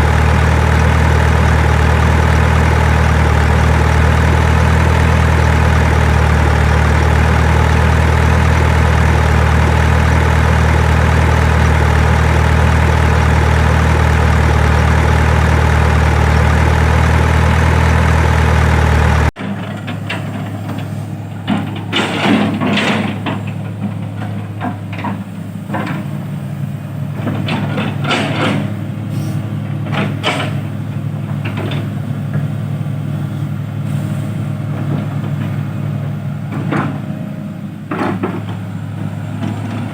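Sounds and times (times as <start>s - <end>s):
diesel engine idling: 0.0s - 39.9s
knocks and clanks: 19.4s - 26.2s, 27.2s - 28.9s, 29.7s - 32.5s, 36.5s - 37.1s, 37.9s - 38.7s.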